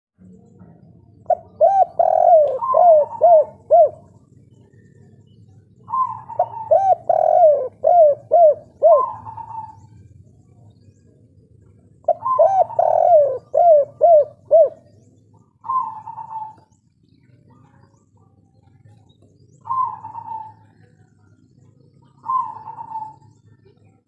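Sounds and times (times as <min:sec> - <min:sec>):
dove cooing: 0:01.2 - 0:10.8, 0:11.6 - 0:16.8, 0:19.5 - 0:23.8.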